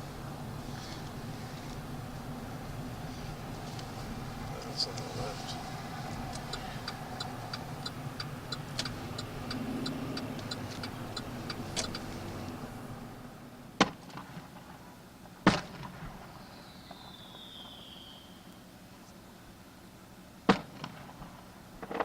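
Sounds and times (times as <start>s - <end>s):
engine and road rumble: 0.0s - 22.0s
turn signal clicking: 3.5s - 12.8s.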